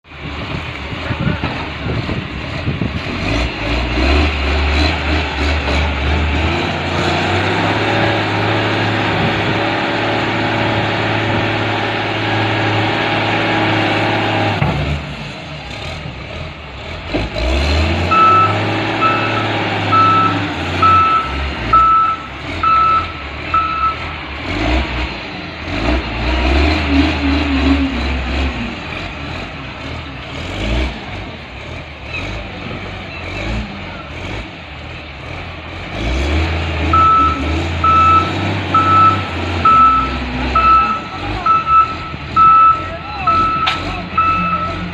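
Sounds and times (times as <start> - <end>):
diesel engine working: 0.0 - 44.9
reversing alarm beeps: 18.1 - 24.0, 37.0 - 44.8.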